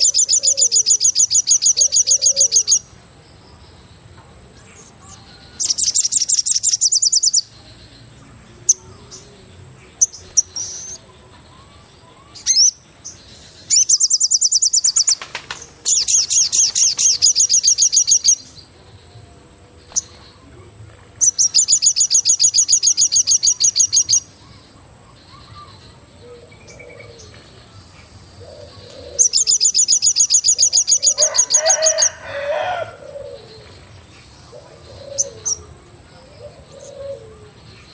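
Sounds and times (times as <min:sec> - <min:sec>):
songbird high-pitched trills: 0:00.0 - 0:04.0, 0:04.6 - 0:19.2, 0:21.2 - 0:32.5.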